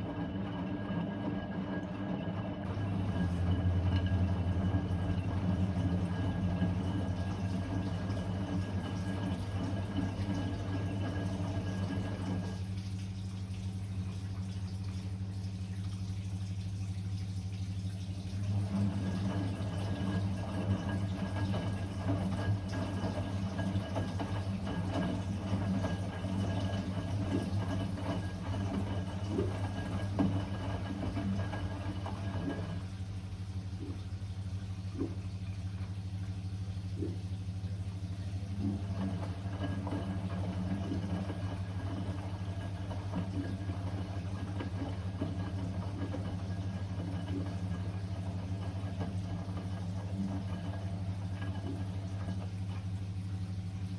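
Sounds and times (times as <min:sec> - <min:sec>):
washing machine motor hum: 0:00.0 - 0:53.9.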